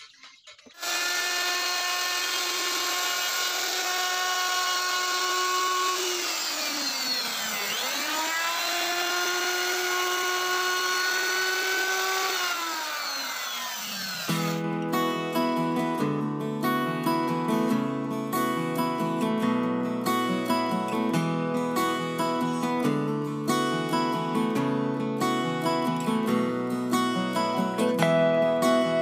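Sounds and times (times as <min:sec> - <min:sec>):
router cutting wood whine: 0:00.7 - 0:14.7.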